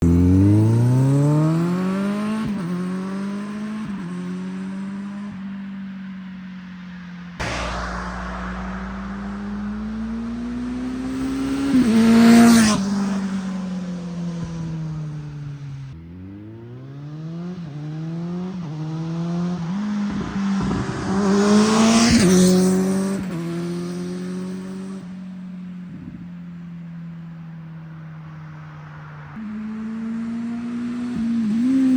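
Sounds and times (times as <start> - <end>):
motorcycle passing by: 7.4 - 14.3, 16.2 - 25.0, 29.4 - 31.9.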